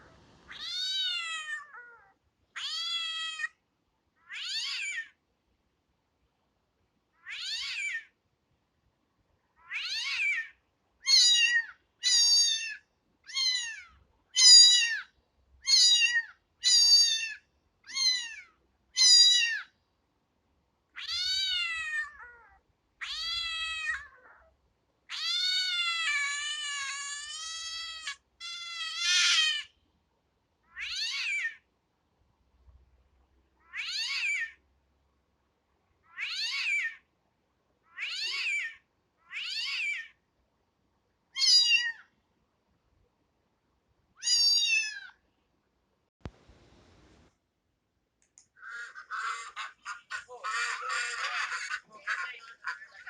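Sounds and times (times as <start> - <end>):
cat meowing: 0.5 - 3.6, 4.2 - 5.2, 7.2 - 8.1, 9.6 - 19.7, 21.0 - 24.5, 25.1 - 29.7, 30.7 - 31.6, 33.6 - 34.6, 36.0 - 37.0, 37.8 - 40.2, 41.4 - 42.1, 44.2 - 45.2.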